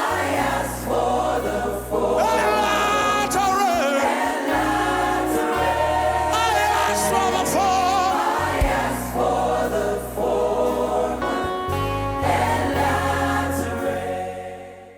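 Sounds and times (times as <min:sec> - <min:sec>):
choir singing: 0:00.0 - 0:14.9
sustained instrumental chords: 0:00.0 - 0:14.9
held bass line: 0:00.2 - 0:14.8.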